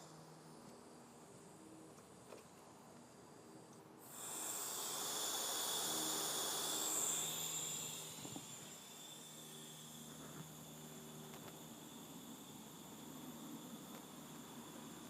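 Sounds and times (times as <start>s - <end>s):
pressurized gas hissing: 3.1s - 15.0s.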